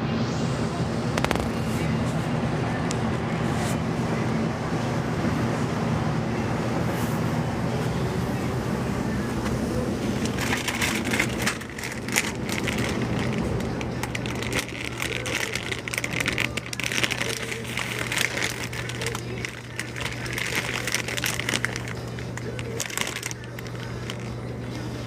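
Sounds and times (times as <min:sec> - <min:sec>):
steady low hum: 0:00.0 - 0:25.0
rustling and clicking from handling: 0:10.2 - 0:24.3.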